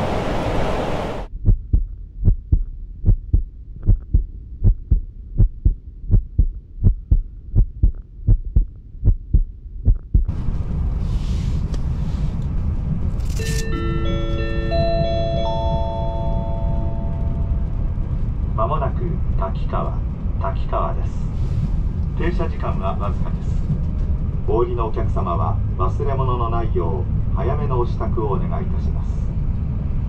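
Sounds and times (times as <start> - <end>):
train running rumble: 0.0 - 30.0
announcement chime: 13.5 - 17.6.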